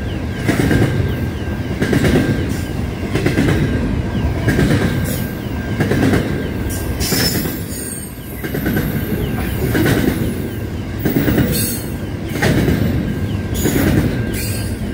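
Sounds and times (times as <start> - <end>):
freight train wheels rumbling: 0.0 - 14.9
train wagons clattering: 0.0 - 14.9.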